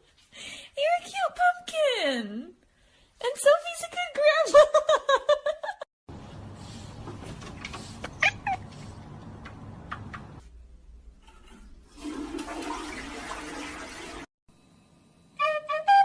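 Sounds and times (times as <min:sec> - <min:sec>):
cat meowing: 0:08.2 - 0:08.7.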